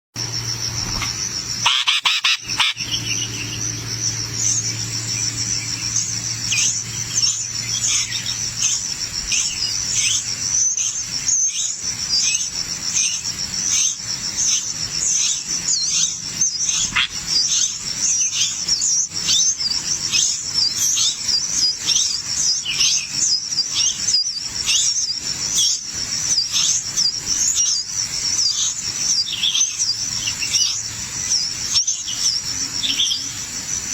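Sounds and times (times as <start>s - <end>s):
low hum: 0.2s - 1.7s, 2.4s - 21.7s
high insect trill: 0.2s - 33.9s
nestlings begging cheeps: 0.2s - 33.9s.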